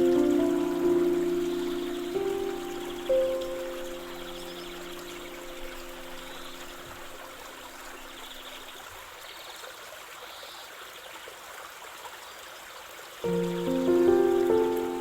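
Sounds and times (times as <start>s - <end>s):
soft background music: 0.0s - 8.0s, 13.3s - 15.0s
stream trickling: 0.0s - 15.0s.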